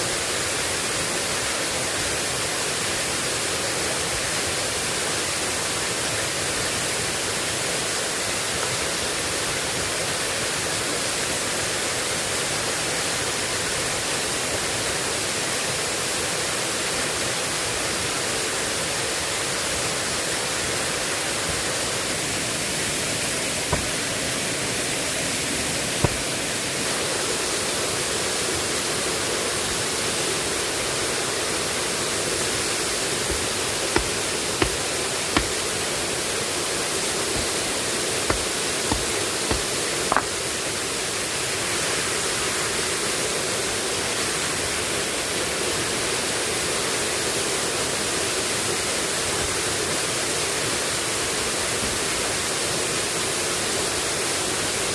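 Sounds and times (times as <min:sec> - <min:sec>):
sharp taps: 0:26.0 - 0:26.2, 0:33.3 - 0:34.8, 0:35.4 - 0:35.6, 0:38.3 - 0:40.3.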